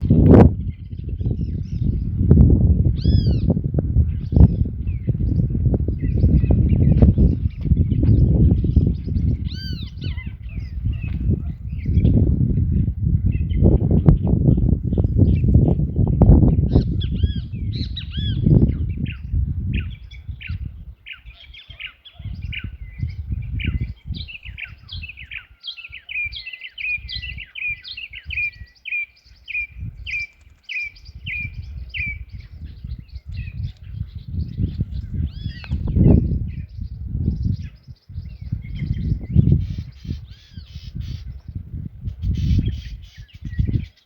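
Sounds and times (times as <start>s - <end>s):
gusty low rumble: 0.0s - 21.0s, 22.2s - 25.4s, 31.0s - 43.9s
birds calling and chirping: 0.0s - 44.0s.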